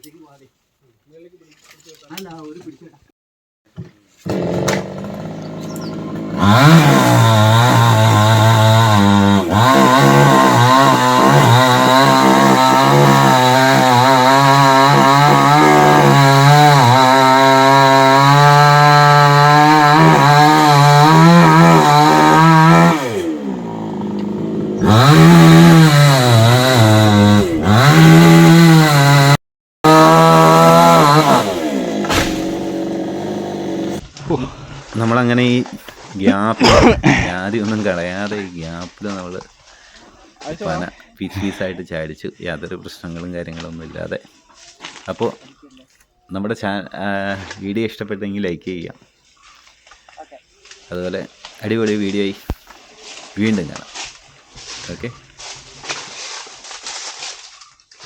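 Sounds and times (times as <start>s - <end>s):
chainsaw cutting trunk: 4.2s - 34.0s.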